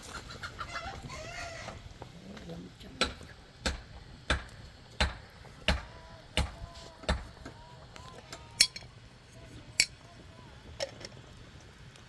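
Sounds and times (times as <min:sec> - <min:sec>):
rhythmic hammer blows: 0:03.0 - 0:07.5.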